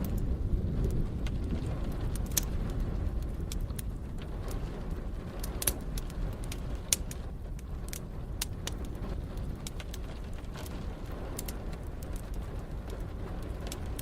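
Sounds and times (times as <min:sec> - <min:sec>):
low fire rumble: 0:00.0 - 0:14.0
wood fire crackling and popping: 0:00.0 - 0:14.0.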